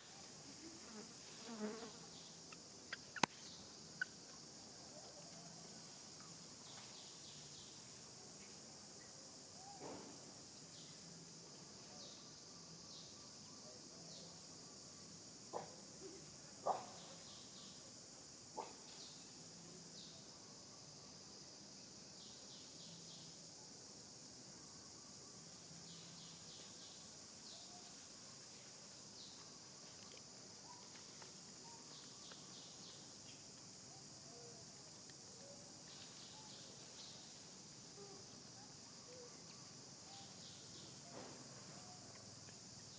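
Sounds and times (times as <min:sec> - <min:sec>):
insects droning: 0:00.0 - 0:42.9
faint bird chirps: 0:02.2 - 0:05.6, 0:29.2 - 0:34.6
sharp click: 0:03.0 - 0:03.5.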